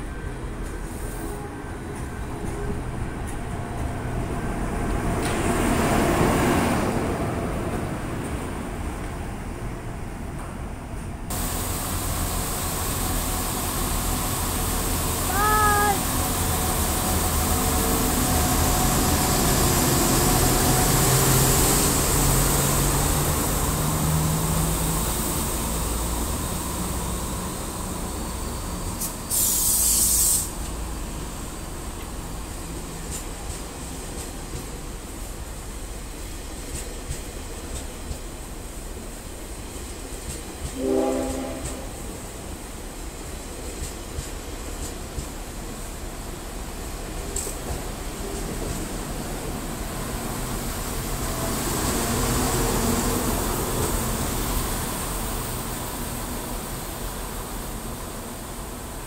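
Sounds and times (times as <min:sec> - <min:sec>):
diesel train rumbling past: 0:00.0 - 0:59.0
sharp hiss: 0:28.9 - 0:30.8.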